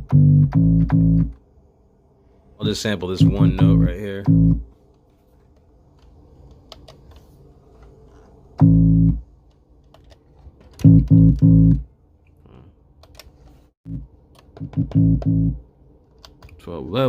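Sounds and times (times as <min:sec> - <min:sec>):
picked bass keyboard notes: 0:00.0 - 0:01.4, 0:02.6 - 0:04.7, 0:08.6 - 0:09.2, 0:10.8 - 0:11.9, 0:13.9 - 0:15.6.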